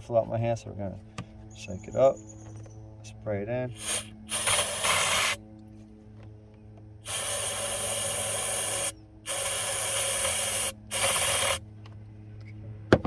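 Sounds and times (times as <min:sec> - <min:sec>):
aerosol can spraying hiss: 0:03.8 - 0:05.4, 0:07.0 - 0:11.6.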